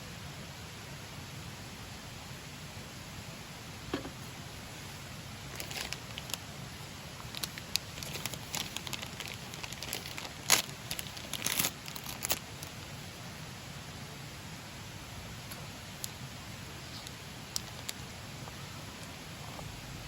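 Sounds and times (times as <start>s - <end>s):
crinkling and rustling handling: 5.5s - 12.9s, 16.8s - 19.7s.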